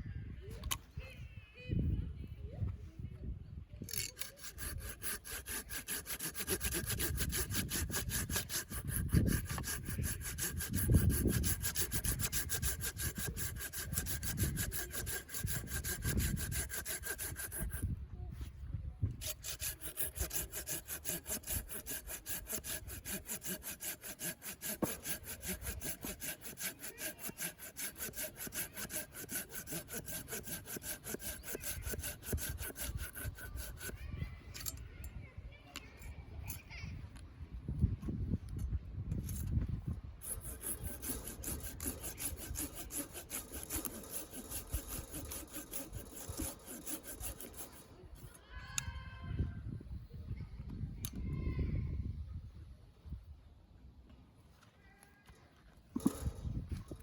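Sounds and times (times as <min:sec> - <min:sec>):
hand saw cutting wood: 0:03.9 - 0:18.0, 0:19.2 - 0:34.7, 0:39.2 - 0:39.6, 0:40.2 - 0:48.4, 0:55.9 - 0:57.0.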